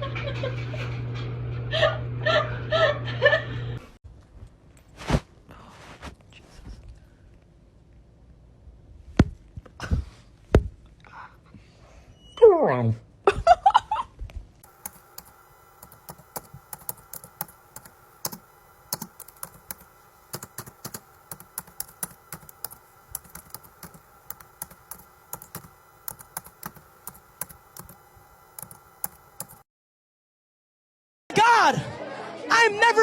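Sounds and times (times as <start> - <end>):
faint steady hum: 14.6 - 29.6
rapid light clicks: 14.7 - 29.6.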